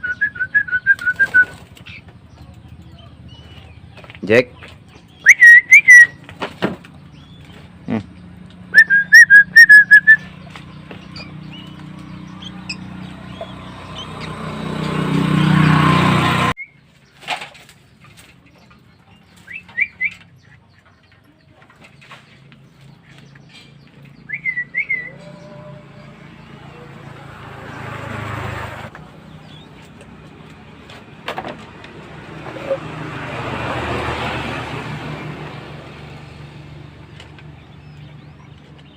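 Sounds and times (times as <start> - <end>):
high whistled chirps: 5.2 - 6.2, 8.7 - 10.4.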